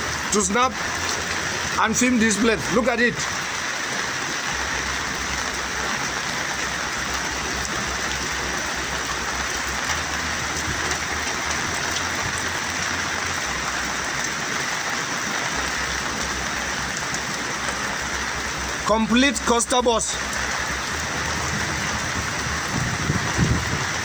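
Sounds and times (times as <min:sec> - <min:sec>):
rain falling: 0:00.0 - 0:24.0
low rumble: 0:20.2 - 0:24.0.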